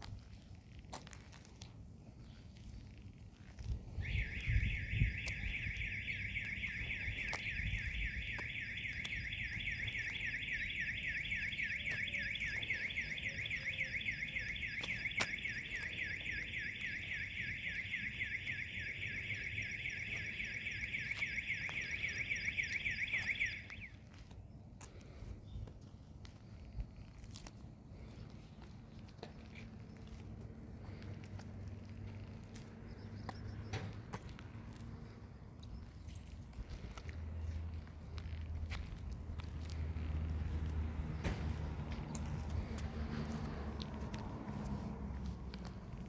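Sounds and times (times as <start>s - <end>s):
vehicle alarm siren warbling: 3.9s - 24.1s.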